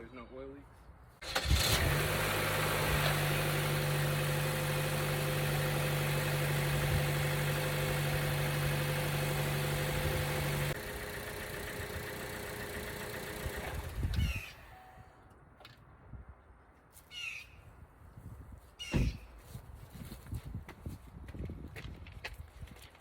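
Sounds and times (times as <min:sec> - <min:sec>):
car engine idling: 0:01.3 - 0:15.1.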